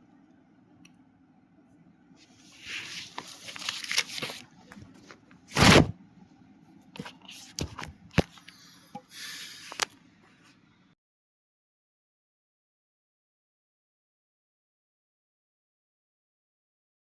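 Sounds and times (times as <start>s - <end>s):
rustling handling noise: 2.2s - 5.9s, 7.0s - 10.6s.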